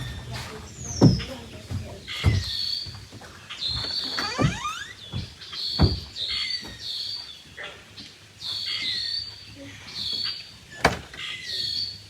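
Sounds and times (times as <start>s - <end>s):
dull thumps: 0.0s - 6.8s
bird high squealing calls: 2.1s - 7.8s.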